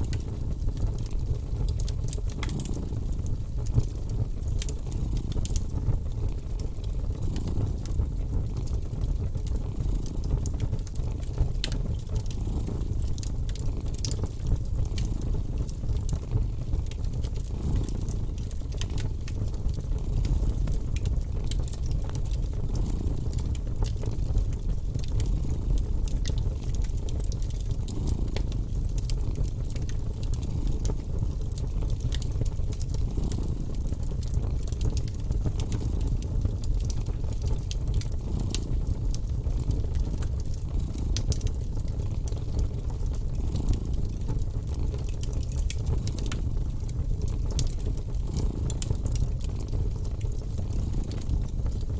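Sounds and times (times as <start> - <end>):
wood fire crackling: 0.0 - 51.9
cat purring: 4.8 - 6.4, 7.0 - 8.7, 9.3 - 10.8, 11.9 - 18.4, 22.0 - 23.5, 27.7 - 29.4, 33.0 - 34.4, 38.2 - 39.0.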